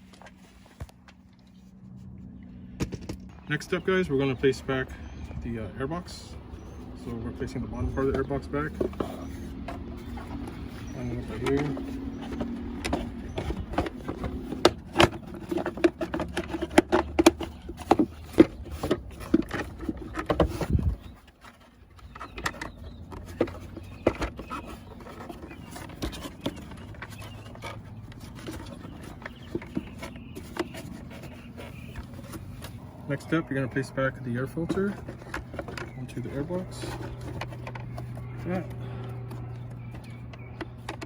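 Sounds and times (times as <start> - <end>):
low steady hum: 0.0 - 41.0
plastic housing clicks and knocks: 6.7 - 33.0, 34.6 - 41.0.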